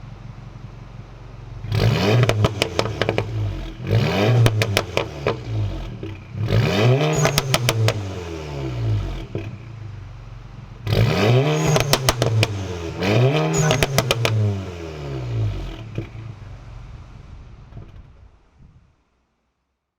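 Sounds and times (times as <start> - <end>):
exhaust pops and crackles: 1.2 - 8.2, 9.0 - 14.5, 15.5 - 19.1
car engine revving: 1.2 - 18.6.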